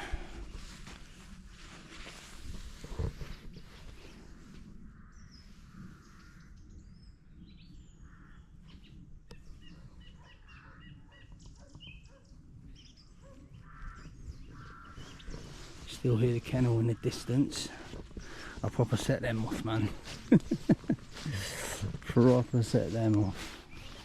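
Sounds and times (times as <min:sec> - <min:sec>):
birds chirping: 0:02.5 - 0:24.0
distant dogs barking: 0:09.6 - 0:15.7.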